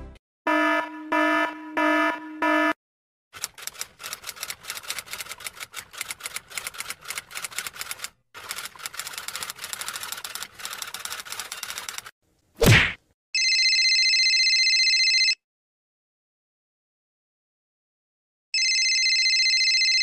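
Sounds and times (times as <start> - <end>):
rapid dense clicking: 3.4 - 12.1.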